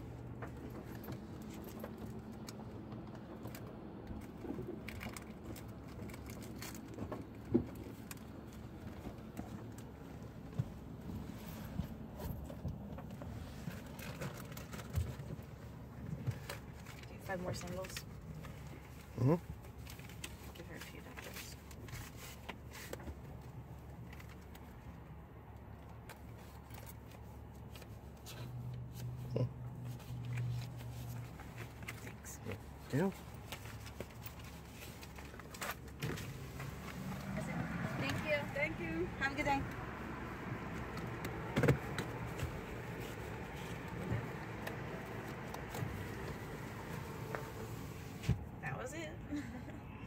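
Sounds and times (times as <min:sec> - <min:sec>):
faint rustles and clicks: 0:00.0 - 0:48.8
car cabin rumble: 0:30.4 - 0:49.6.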